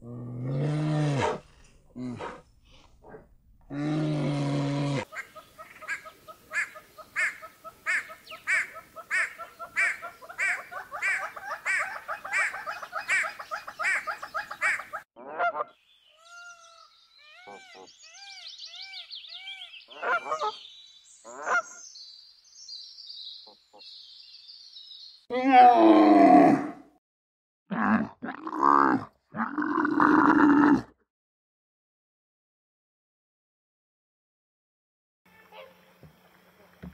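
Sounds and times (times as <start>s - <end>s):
hornbills calling loudly: 5.0s - 15.8s, 19.4s - 20.6s
varied bird calls: 5.0s - 25.3s.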